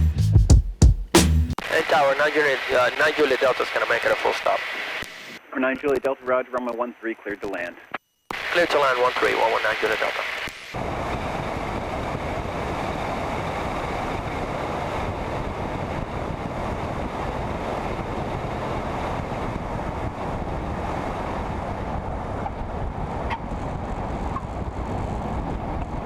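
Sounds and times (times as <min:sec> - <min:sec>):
aircraft engine and airflow noise: 0:10.8 - 0:26.0.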